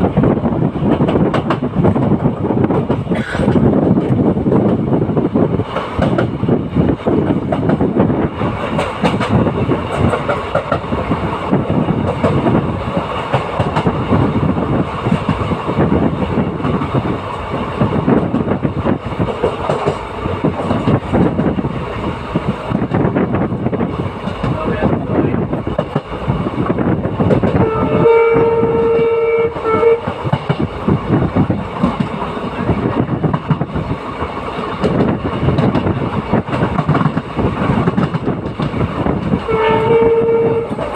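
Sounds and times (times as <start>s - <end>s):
train wheels rumbling on rails: 0.0s - 40.9s
train horn: 27.6s - 30.2s, 39.5s - 40.9s.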